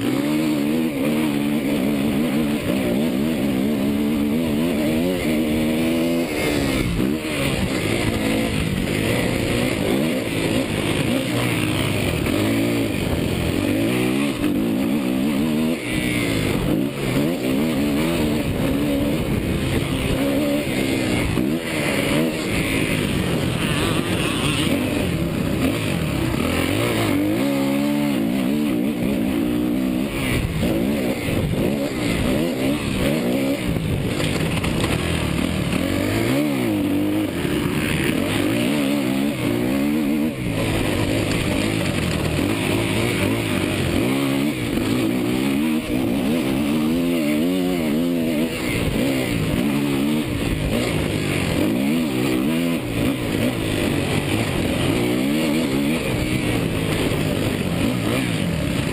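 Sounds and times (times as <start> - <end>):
motorbike engine revving: 0.0 - 58.9
steady rush of noise: 0.0 - 58.9.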